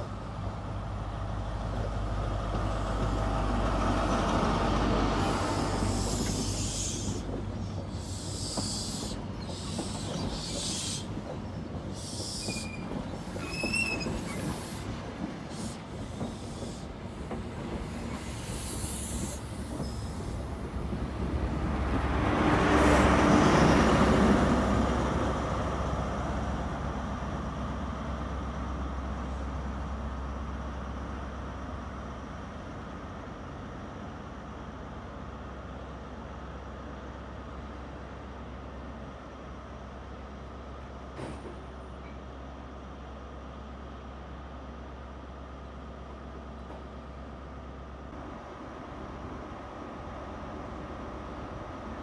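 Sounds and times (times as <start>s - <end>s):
train rolling slowly past: 0.0s - 52.0s
high wheel squeals: 5.2s - 11.2s, 11.9s - 14.9s.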